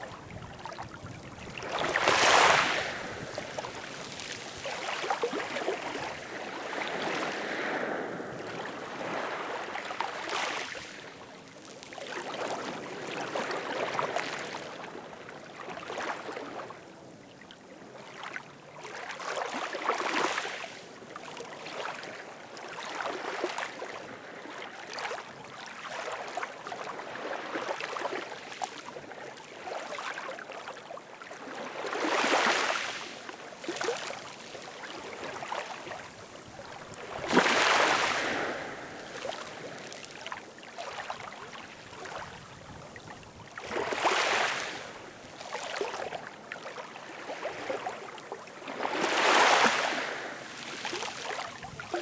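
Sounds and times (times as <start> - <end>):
ocean waves washing in: 1.4 - 10.0, 35.1 - 40.0.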